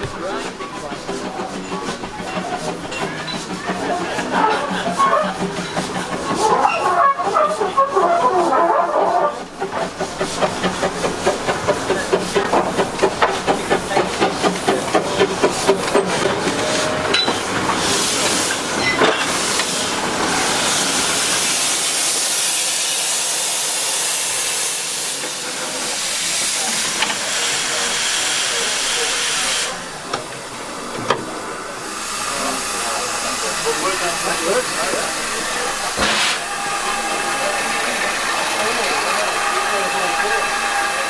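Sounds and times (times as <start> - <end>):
steam locomotive exhaust chuffs: 0.0 - 41.0
escaping steam hiss: 9.6 - 41.0.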